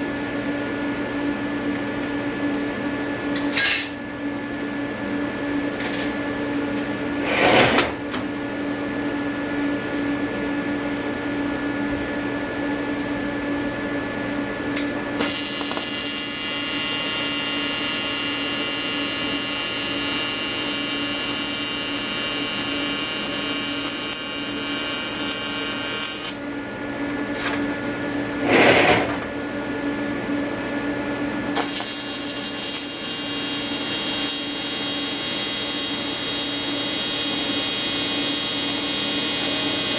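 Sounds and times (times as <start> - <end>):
welding arc buzzing: 3.4 - 4.0, 14.8 - 26.4, 31.6 - 39.9
short scraping noises: 7.2 - 7.8, 28.4 - 29.2.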